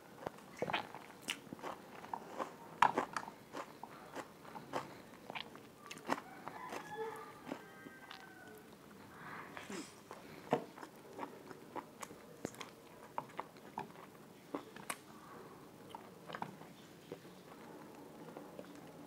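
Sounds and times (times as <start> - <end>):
chewing and biting food: 0.2 - 8.2, 10.1 - 15.0.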